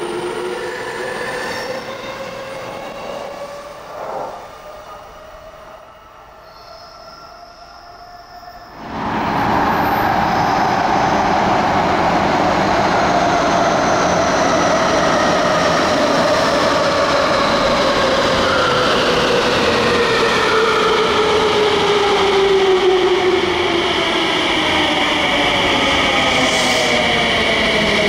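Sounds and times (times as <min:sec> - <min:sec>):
electric train rushing: 0:00.0 - 0:05.6
faint train sound: 0:01.4 - 0:11.4.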